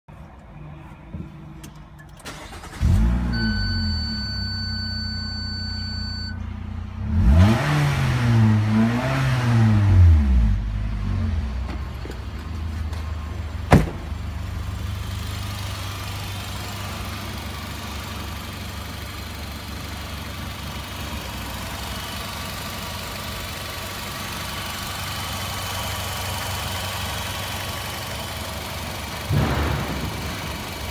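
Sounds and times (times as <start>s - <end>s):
car engine starting and revving: 2.0s - 11.7s
steady high tone: 3.4s - 6.4s.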